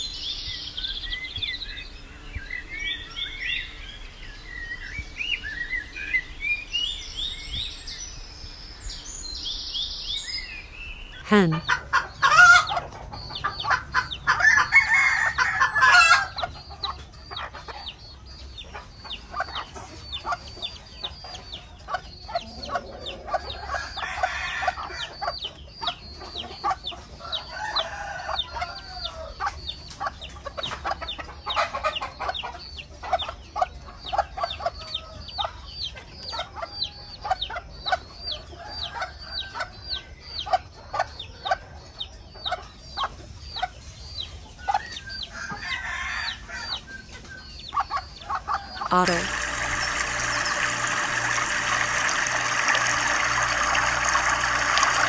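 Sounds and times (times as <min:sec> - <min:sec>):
chickens clucking: 0:11.2 - 0:55.0.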